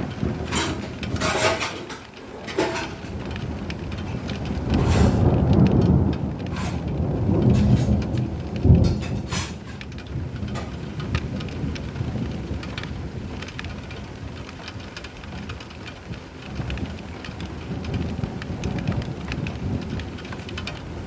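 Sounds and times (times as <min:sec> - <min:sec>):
sharp thunder crack: 0:00.0 - 0:12.6
steady rain: 0:00.0 - 0:21.0
thunder rumbling: 0:00.0 - 0:21.0.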